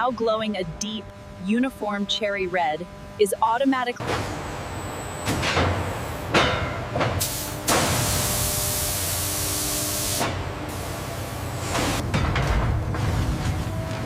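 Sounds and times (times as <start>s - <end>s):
machinery low hum: 0.0s - 14.0s
machinery clanks: 4.0s - 8.0s, 11.6s - 14.0s
loud even hiss: 7.2s - 12.0s.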